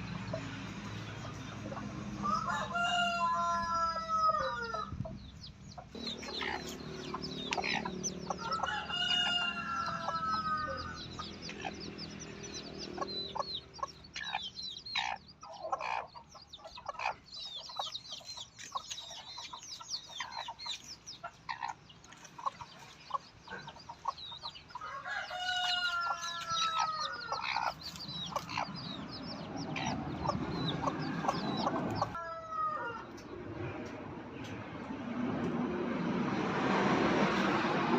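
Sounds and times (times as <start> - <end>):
hens clucking: 0.0 - 34.6
rooster crowing: 2.2 - 4.9, 7.6 - 11.0, 24.8 - 27.6, 32.0 - 33.1.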